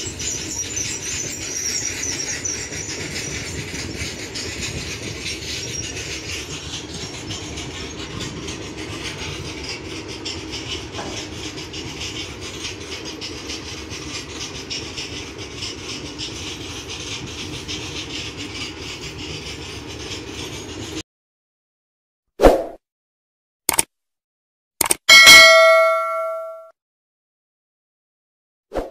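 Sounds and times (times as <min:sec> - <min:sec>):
passing train rumbling: 0:00.0 - 0:21.0
wheels rattling on track: 0:00.0 - 0:21.0.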